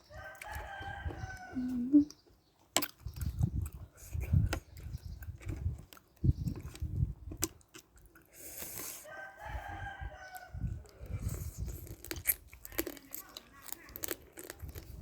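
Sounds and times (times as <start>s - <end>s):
chewing and eating: 0.0s - 15.0s
rooster crowing: 0.1s - 1.8s, 9.0s - 10.7s.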